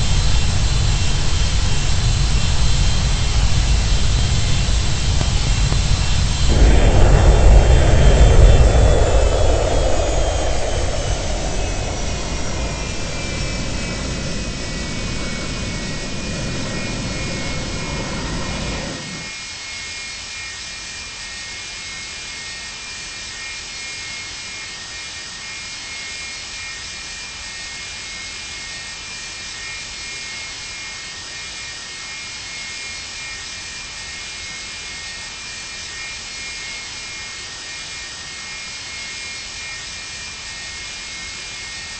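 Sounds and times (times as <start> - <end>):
heavy low rumble: 0.0 - 19.3
jet engines winding down: 0.0 - 19.4.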